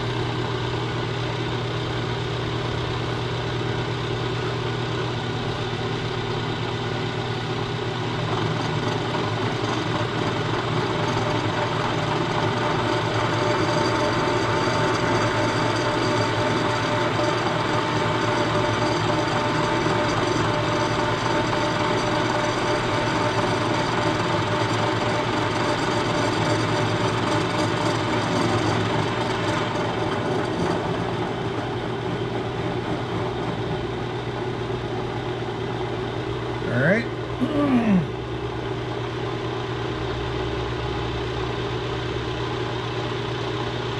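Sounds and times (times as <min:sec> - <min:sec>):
thin machine whine: 0:11.0 - 0:31.0.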